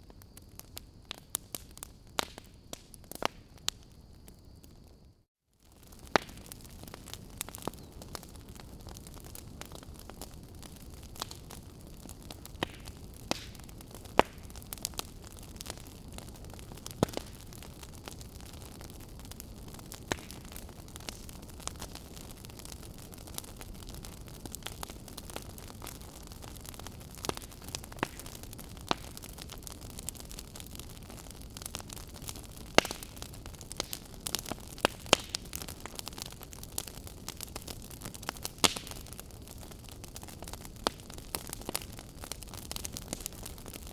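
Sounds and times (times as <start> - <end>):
wood fire crackling and popping: 0.0 - 5.0, 5.6 - 43.9.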